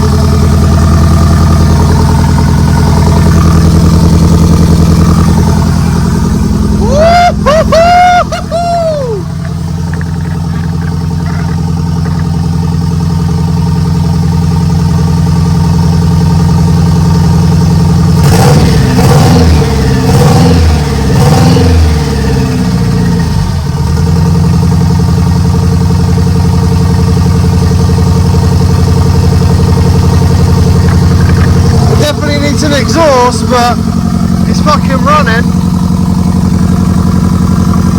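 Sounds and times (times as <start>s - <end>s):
car engine idling and revving: 0.0s - 37.9s.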